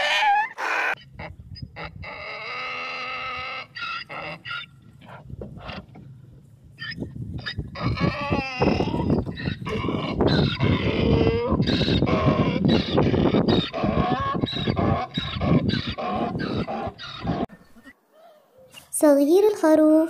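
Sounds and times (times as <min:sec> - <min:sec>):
donkey braying: 0:00.0 - 0:06.2, 0:06.8 - 0:18.8.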